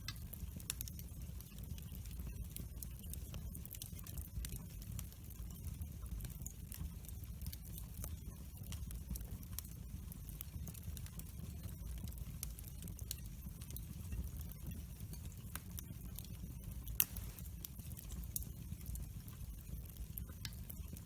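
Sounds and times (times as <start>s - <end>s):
logs crackling and popping: 6.0s - 21.0s
fire rumbling: 16.8s - 21.0s.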